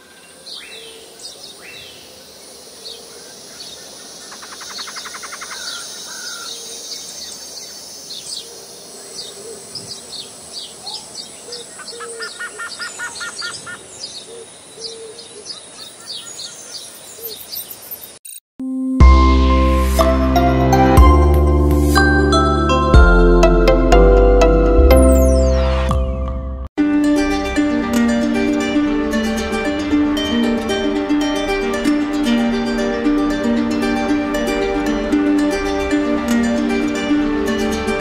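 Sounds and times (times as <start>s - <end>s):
birds chirping and trilling: 0.0s - 18.2s
loud music: 19.0s - 38.0s.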